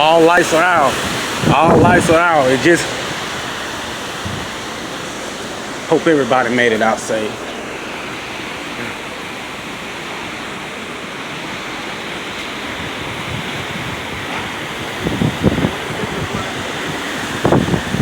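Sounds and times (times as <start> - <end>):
rushing wind and rain: 0.0 - 18.0
low thumps: 4.2 - 4.8.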